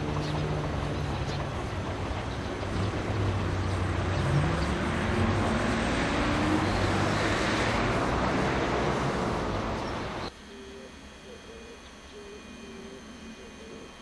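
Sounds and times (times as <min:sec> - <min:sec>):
diesel engine note rising: 0:00.0 - 0:10.3
freight train rumbling: 0:00.0 - 0:10.3.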